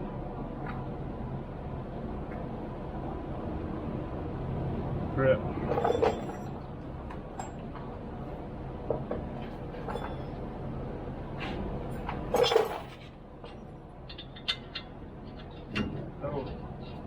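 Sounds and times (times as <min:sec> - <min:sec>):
metal tools clinking: 0:05.7 - 0:06.5, 0:12.3 - 0:13.1.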